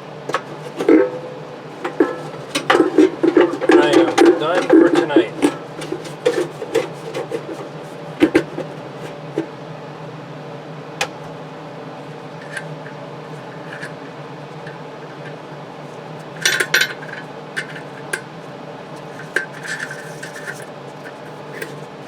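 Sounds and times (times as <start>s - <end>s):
steady low hum: 0.0s - 22.0s
objects clattering: 0.3s - 1.2s, 1.8s - 9.5s, 16.2s - 18.2s, 19.0s - 21.9s.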